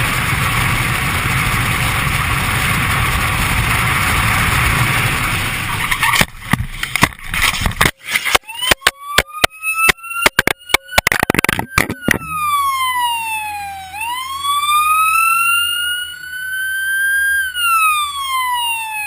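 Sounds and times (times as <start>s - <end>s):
sharp clicks and knocks: 5.9s - 12.3s
emergency siren wailing: 8.3s - 19.0s.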